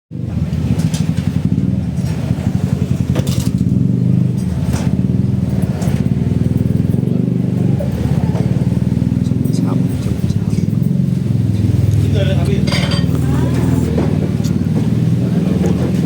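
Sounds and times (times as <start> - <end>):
engine droning: 0.1 - 16.0.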